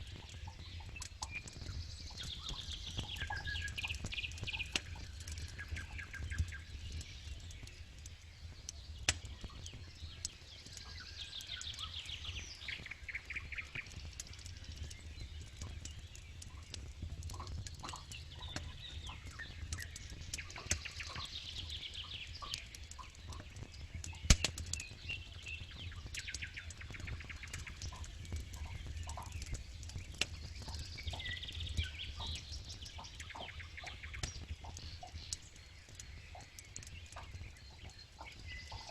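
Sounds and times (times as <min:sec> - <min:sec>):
campfire crackling and popping: 0:00.0 - 0:38.9
low rumble of flames: 0:00.0 - 0:38.9
loud wood snaps: 0:09.0 - 0:10.8, 0:22.4 - 0:24.9.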